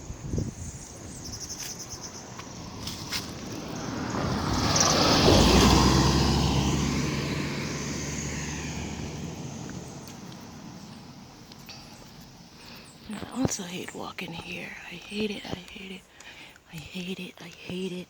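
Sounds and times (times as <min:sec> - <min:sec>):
vehicle driving past: 0:02.2 - 0:12.9.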